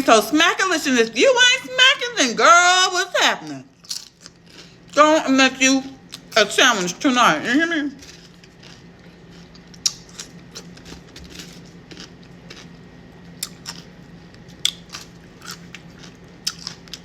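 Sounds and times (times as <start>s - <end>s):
chewing crunchy food: 3.7s - 5.0s, 8.0s - 17.0s.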